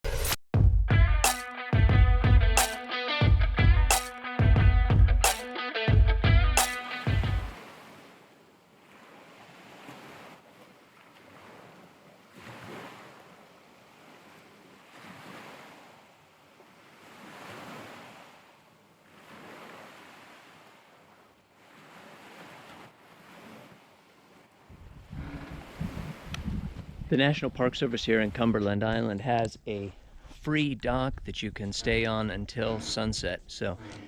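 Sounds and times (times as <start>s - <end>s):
ocean surf breaking: 6.6s - 10.4s, 11.2s - 16.0s, 16.9s - 28.4s.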